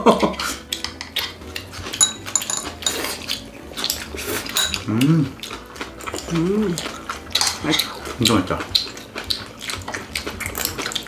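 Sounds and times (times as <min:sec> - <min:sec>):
tableware clicking and clinking: 0:00.8 - 0:04.9, 0:07.4 - 0:07.7
person humming: 0:04.8 - 0:05.4, 0:06.2 - 0:07.0.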